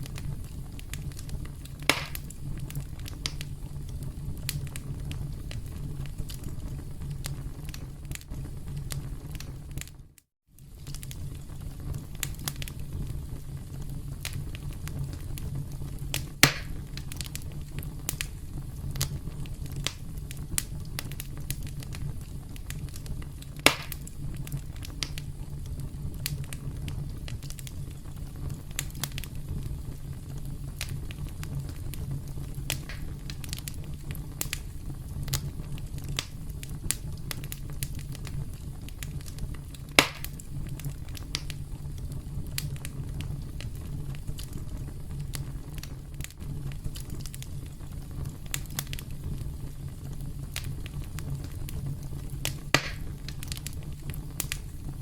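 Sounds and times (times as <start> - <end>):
sharp loud pops of fire: 0.0 - 3.6, 16.1 - 21.9, 22.6 - 25.3, 30.8 - 34.7, 35.3 - 41.6, 52.4 - 54.7
campfire crackling: 0.0 - 55.0.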